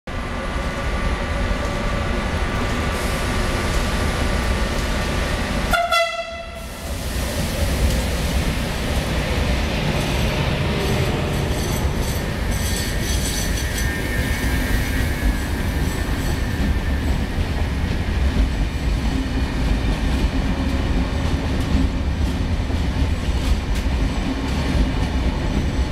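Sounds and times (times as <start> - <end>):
electric train rumble: 0.1 - 25.9
train horn blast: 5.7 - 6.7
train wheels clattering: 9.9 - 25.9.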